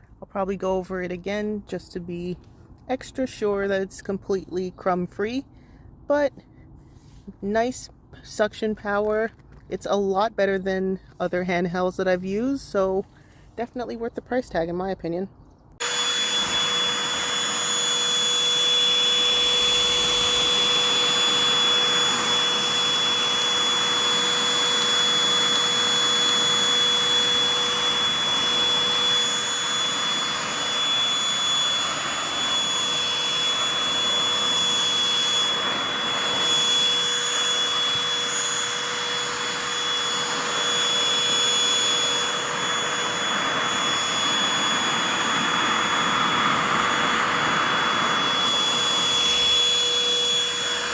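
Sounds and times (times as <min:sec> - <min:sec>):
handheld vacuum cleaner running: 0:15.8 - 0:50.9.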